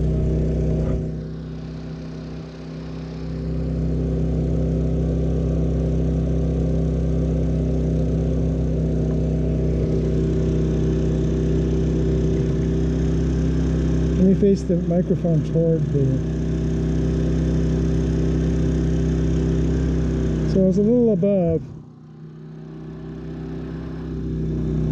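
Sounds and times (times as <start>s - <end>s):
generator running: 0.0s - 24.9s.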